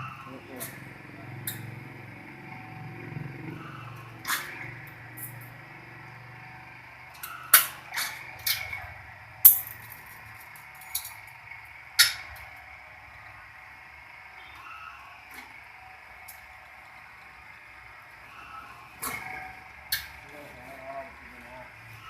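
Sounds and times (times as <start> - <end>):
steel wire clanking on metal: 9.4 - 11.2.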